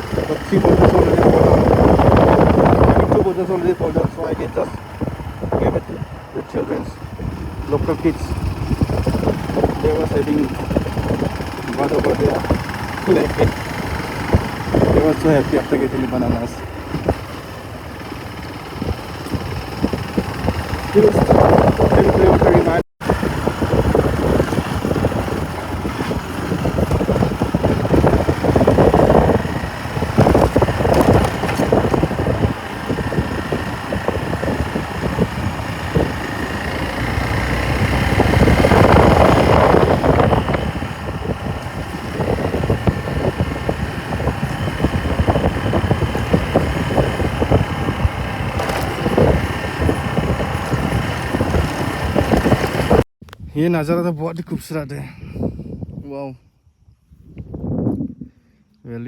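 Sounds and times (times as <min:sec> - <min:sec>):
motorcycle engine running: 0:00.0 - 0:53.1
wind rushing past: 0:16.6 - 0:53.5.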